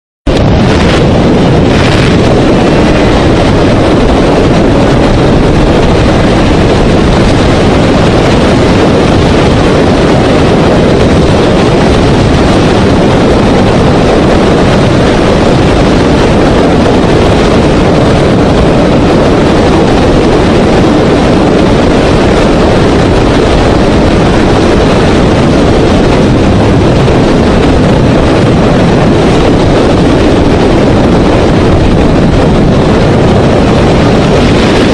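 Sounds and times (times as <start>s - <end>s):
vehicle road and wind noise: 0.0s - 34.9s.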